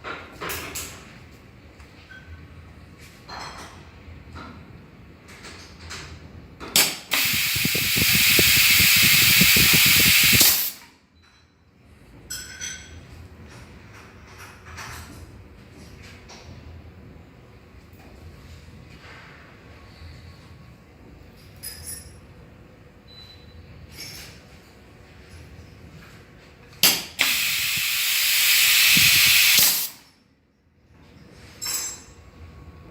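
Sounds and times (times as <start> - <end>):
loud air hiss: 6.8 - 10.9, 26.8 - 30.1.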